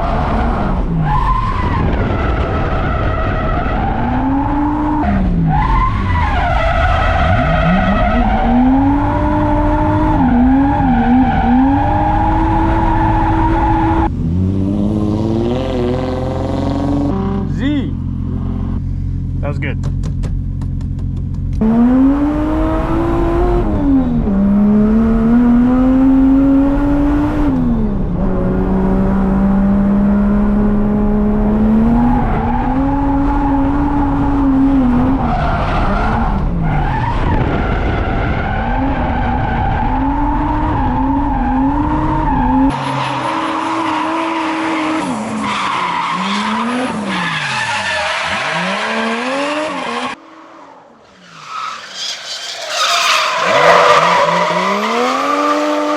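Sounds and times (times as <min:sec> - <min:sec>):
tyres squealing and skidding: 0:00.0 - 0:14.1, 0:35.0 - 0:55.9
car engine revving hard: 0:06.9 - 0:17.5, 0:21.6 - 0:47.4, 0:53.2 - 0:55.9.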